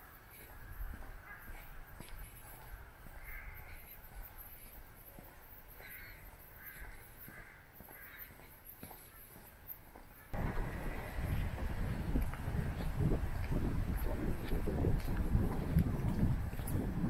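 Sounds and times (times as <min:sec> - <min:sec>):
faint footsteps: 0:00.0 - 0:17.0
bird calling: 0:00.1 - 0:11.6
low rumble: 0:10.4 - 0:16.6.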